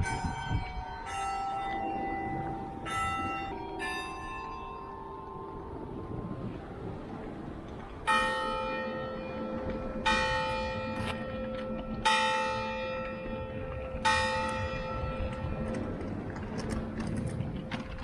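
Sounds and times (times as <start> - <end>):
church bell tolling: 0.0 - 6.3, 8.0 - 15.9.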